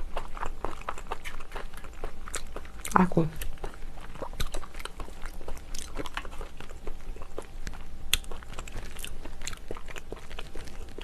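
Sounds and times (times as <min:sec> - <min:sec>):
person chewing: 0:00.0 - 0:11.0.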